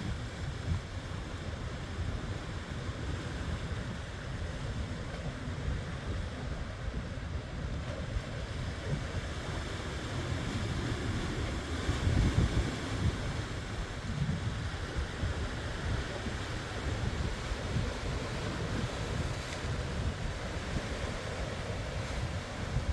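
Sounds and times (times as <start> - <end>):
wind buffeting microphone: 0.0 - 22.9
ocean surf washing in: 8.4 - 22.9.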